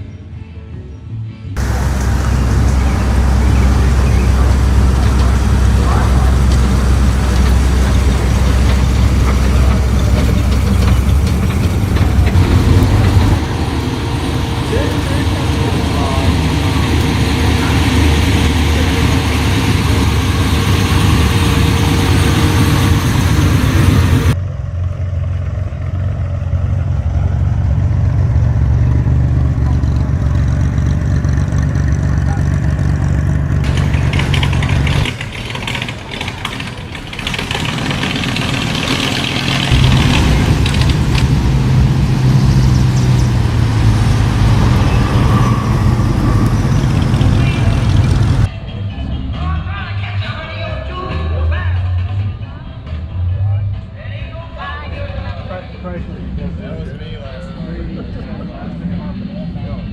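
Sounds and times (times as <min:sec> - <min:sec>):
car engines idling: 0:01.6 - 0:48.5.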